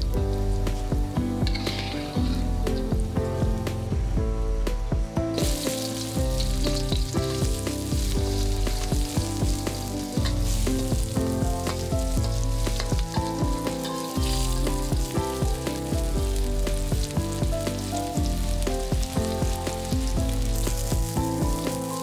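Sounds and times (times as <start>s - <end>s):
background music with steady beat: 0.0s - 22.0s
garlic sizzling in hot oil: 0.0s - 22.0s
spatula stirring in a wok: 5.4s - 22.0s.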